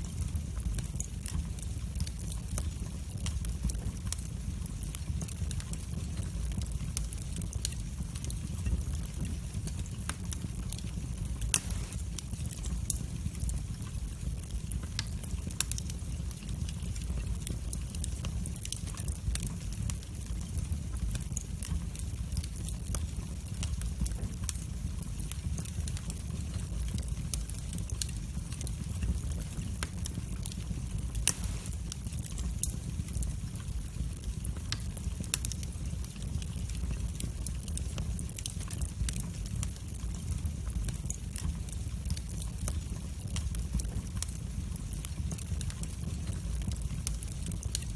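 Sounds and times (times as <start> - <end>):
low rumble of flames: 0.0 - 47.9
wood fire crackling and popping: 0.0 - 47.9.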